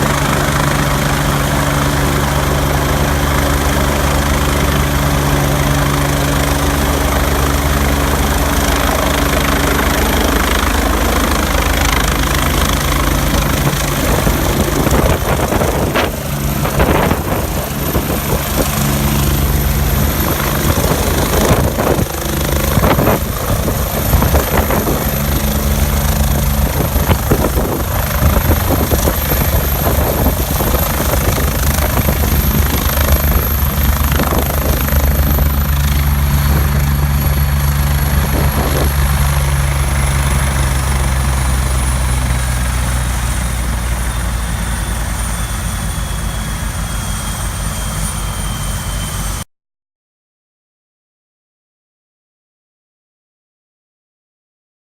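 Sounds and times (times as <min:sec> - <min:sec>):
helicopter running: 0:00.0 - 0:49.4.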